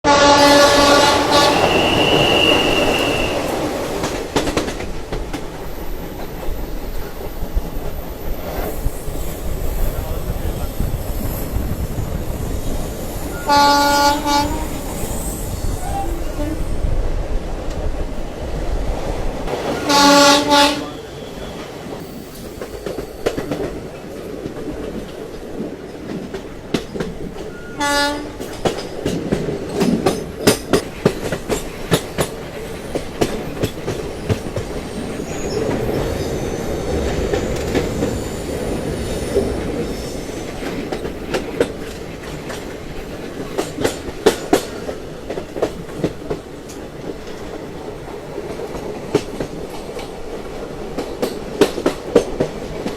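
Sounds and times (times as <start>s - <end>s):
train horn blasts: 0.0s - 3.5s, 13.3s - 16.8s, 19.5s - 21.2s, 27.6s - 28.5s
running train rumble: 0.0s - 52.9s
train wheels clicking over rail joints: 1.0s - 15.8s, 21.6s - 52.9s.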